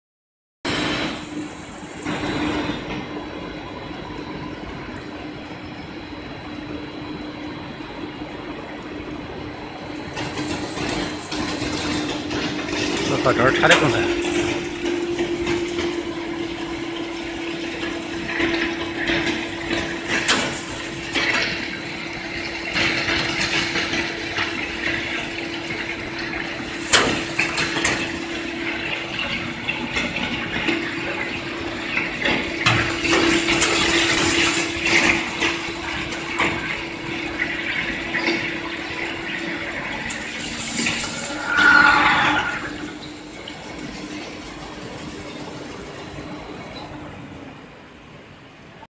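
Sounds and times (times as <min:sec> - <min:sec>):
drilling machine hum and hiss: 0:06.0 - 0:44.0.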